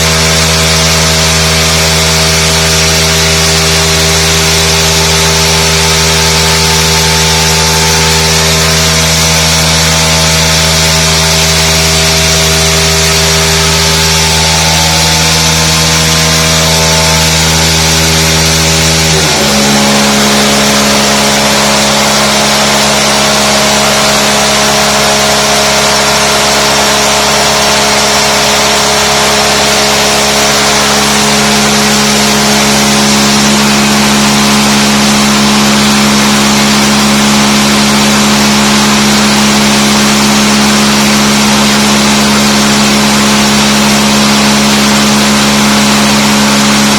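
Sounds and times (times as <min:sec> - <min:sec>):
two-stroke engine running under load: 0:00.0 - 0:46.9.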